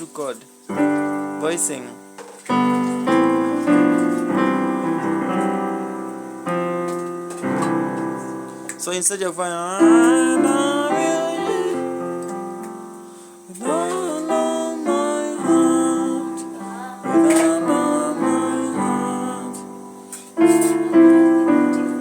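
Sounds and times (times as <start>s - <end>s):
piano chords: 0.0s - 22.0s
person singing: 2.6s - 6.2s, 8.8s - 12.4s, 13.5s - 22.0s.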